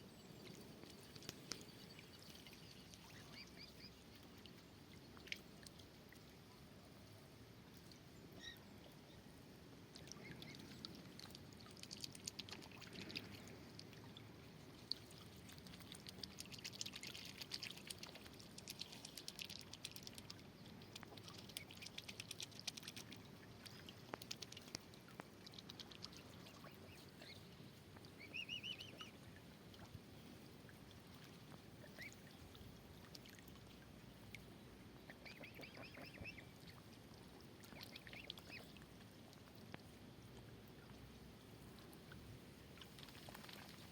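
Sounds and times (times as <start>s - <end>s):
water splashing and dripping: 9.9s - 26.9s, 30.7s - 34.4s, 36.1s - 41.0s, 42.8s - 43.9s.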